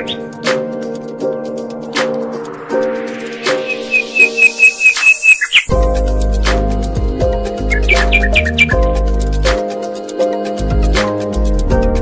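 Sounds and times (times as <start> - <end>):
background music: 0.0 - 12.0
bird chirping high whistled notes: 3.4 - 5.7, 7.6 - 8.8
deep bass: 5.7 - 9.6, 10.6 - 12.0.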